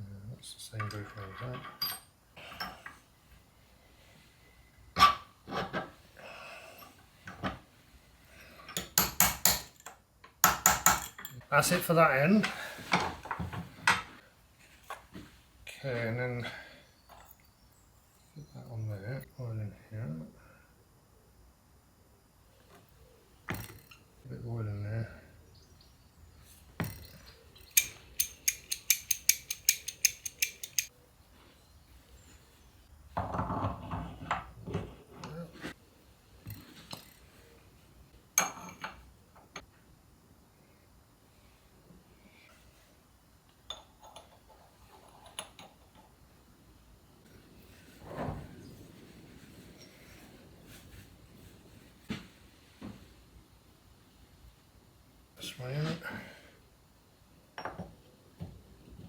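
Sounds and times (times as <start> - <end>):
metal gear parts clicking: 26.9 - 30.9.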